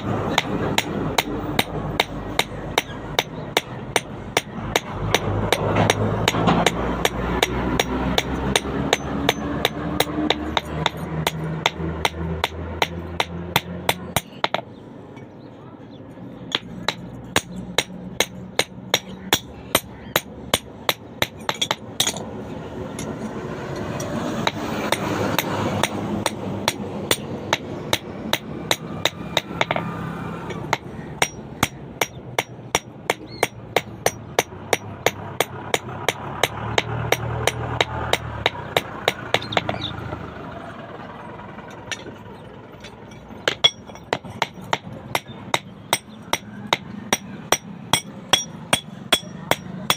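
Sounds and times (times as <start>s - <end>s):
hammer striking steel on anvil: 0.0s - 14.6s, 30.5s - 39.9s, 42.8s - 49.9s.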